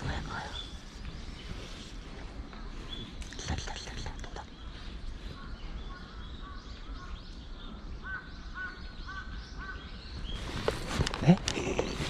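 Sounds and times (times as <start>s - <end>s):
distant bird calling: 0.0s - 12.0s
rustle and click: 10.4s - 12.0s.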